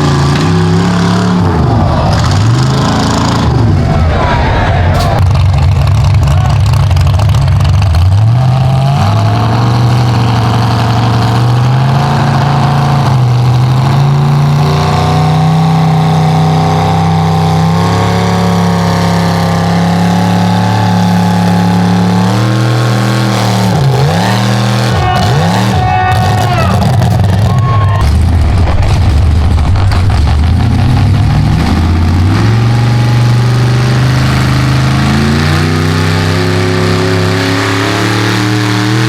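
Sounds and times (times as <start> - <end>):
truck engine revving under load: 0.0 - 39.0.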